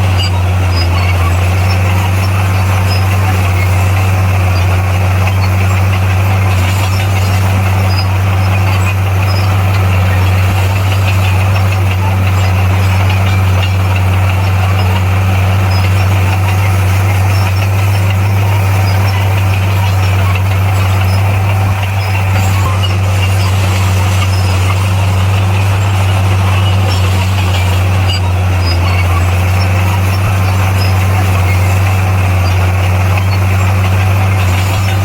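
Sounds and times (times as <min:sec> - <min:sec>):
bulldozer diesel engine humming: 0:00.0 - 0:35.0.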